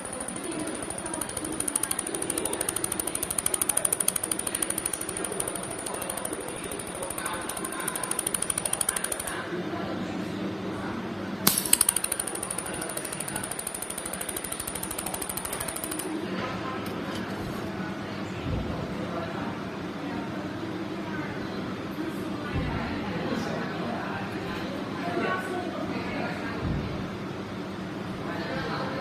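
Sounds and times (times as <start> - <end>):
laser welder ticking and whining: 0.0 - 9.4, 11.5 - 16.2
sharp click: 0.0 - 9.4, 11.5 - 16.1.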